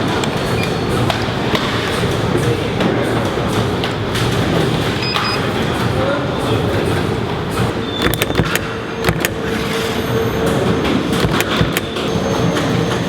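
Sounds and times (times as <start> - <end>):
factory machinery humming: 0.0 - 13.0
sharp clicks and knocks: 11.1 - 12.7.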